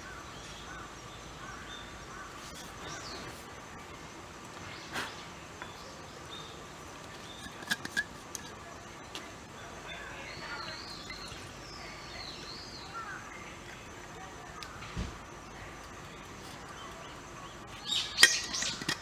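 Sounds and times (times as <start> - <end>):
birds chirping: 0.0 - 19.0
outdoor background noise: 0.0 - 19.0.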